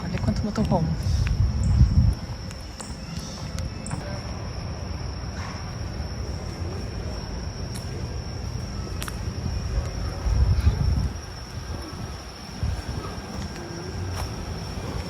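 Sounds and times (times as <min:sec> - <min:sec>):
low rumble: 0:00.0 - 0:02.6
high-pitched insect trill: 0:00.0 - 0:15.0.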